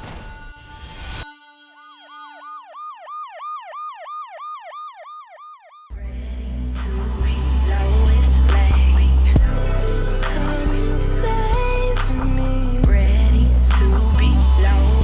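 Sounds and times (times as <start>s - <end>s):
siren wailing: 0.0s - 6.8s
loud bass-heavy music: 5.9s - 15.0s.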